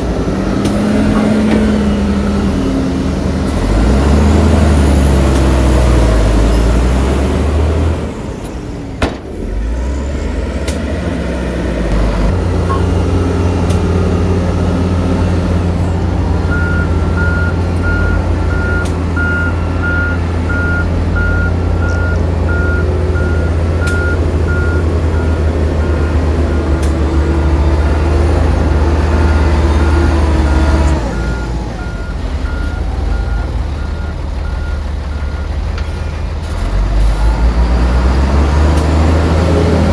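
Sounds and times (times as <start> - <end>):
diesel machinery running: 0.0 - 39.9
reversing alarm beeping: 12.6 - 13.2, 16.4 - 35.6.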